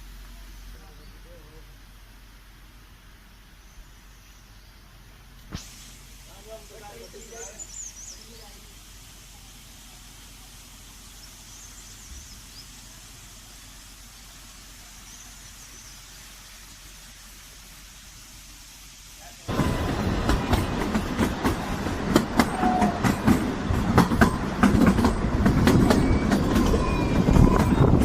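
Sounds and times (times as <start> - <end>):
faint steady hiss: 0.0 - 22.5
train rattling on track: 19.4 - 28.0
thin wheel squeal: 25.9 - 28.0.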